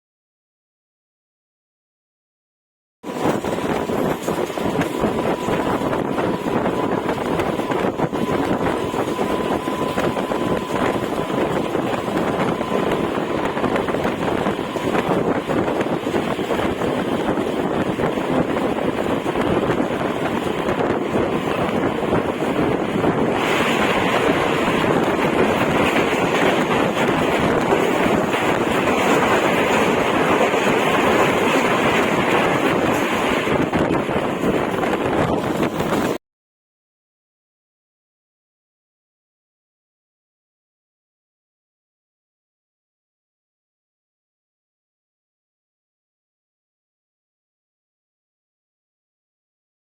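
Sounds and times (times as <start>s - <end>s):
train wheels rumbling on rail: 3.0s - 36.2s
wind buffeting microphone: 3.0s - 36.2s.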